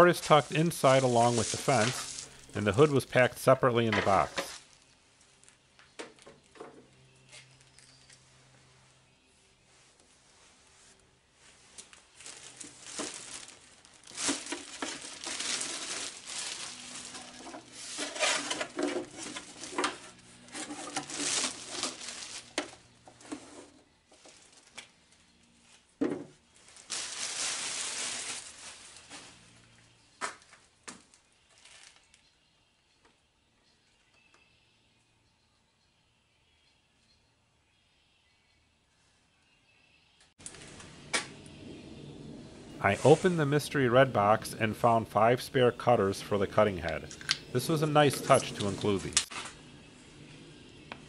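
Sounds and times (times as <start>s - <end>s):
packing material crinkling and tearing: 0.0s - 5.7s, 11.5s - 23.4s, 24.2s - 29.7s, 30.9s - 32.4s, 47.0s - 49.6s.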